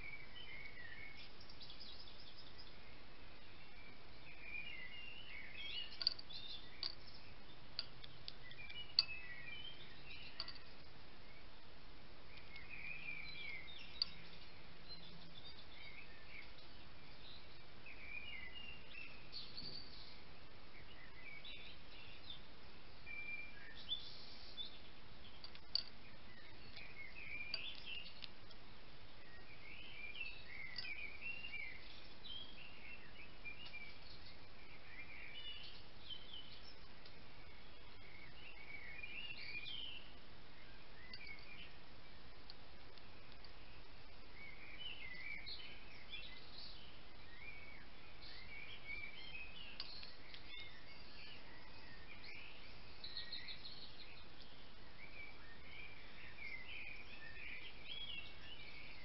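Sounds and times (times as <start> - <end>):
bird twittering: 4.4 - 10.8.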